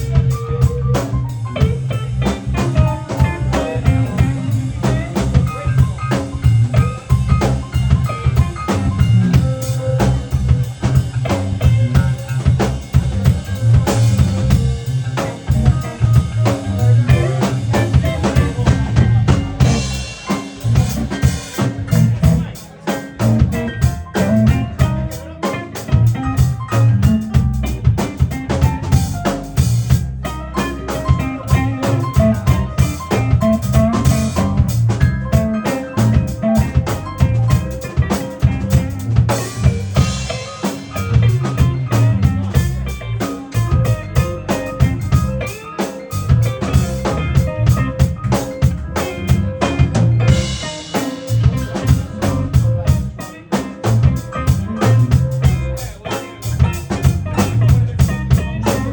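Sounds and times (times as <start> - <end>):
bass line: 0.0 - 58.9
drum kit beat: 0.0 - 58.9
keyboard music: 0.0 - 58.9.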